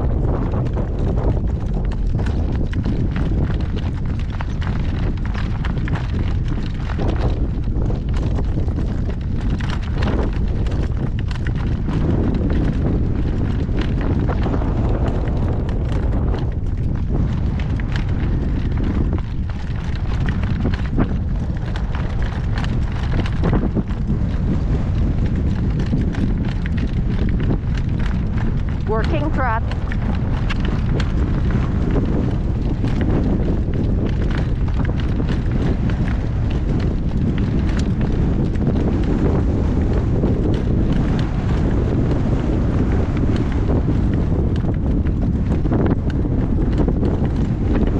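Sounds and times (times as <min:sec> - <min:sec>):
horse hoofbeats clip-clop: 0:00.0 - 0:47.9
wind buffeting microphone: 0:00.0 - 0:47.9.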